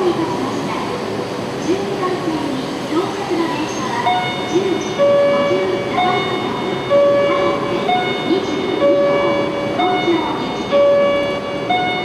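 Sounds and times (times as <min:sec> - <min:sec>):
station background noise: 0:00.0 - 0:12.0.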